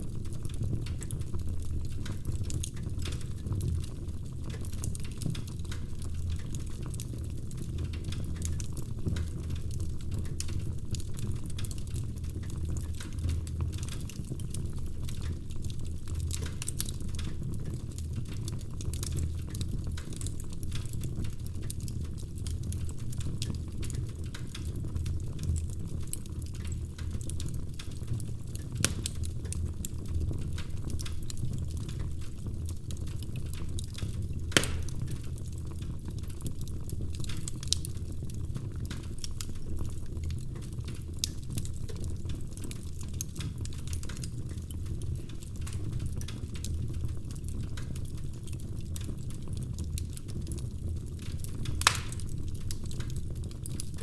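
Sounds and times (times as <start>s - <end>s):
wood fire crackling: 0.0s - 54.0s
sharp pops of fire: 28.8s - 29.3s, 33.8s - 35.3s, 51.5s - 53.8s.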